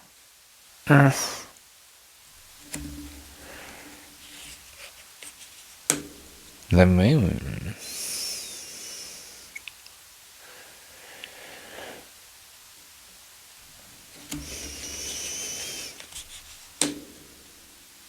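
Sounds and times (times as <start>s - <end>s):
cards sliding rustle: 2.4s - 6.6s, 13.9s - 17.5s
card tapping: 2.6s - 4.5s, 14.2s - 17.3s
card hiss with faint whistle: 7.8s - 9.8s, 14.2s - 16.6s.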